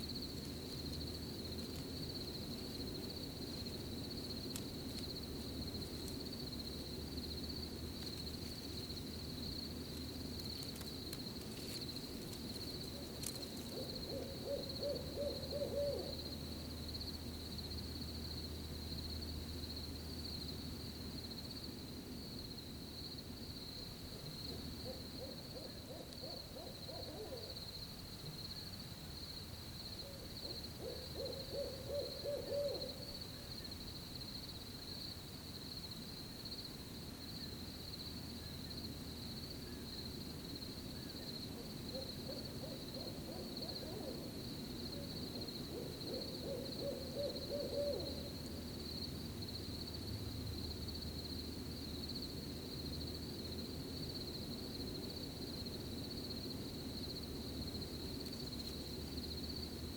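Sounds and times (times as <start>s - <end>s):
crickets trilling: 0.0s - 59.9s
owl hooting: 12.9s - 16.3s, 24.5s - 27.6s, 30.0s - 33.5s, 41.0s - 44.4s, 45.0s - 48.4s.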